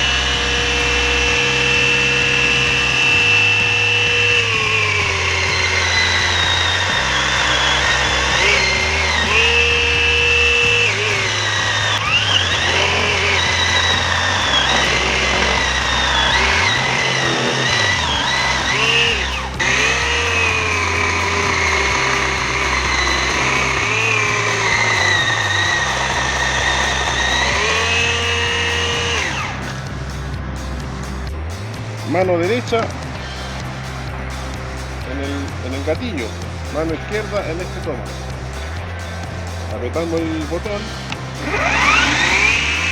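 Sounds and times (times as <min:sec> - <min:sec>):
chainsaw cutting wood: 0:00.0 - 0:30.0, 0:40.0 - 0:42.9.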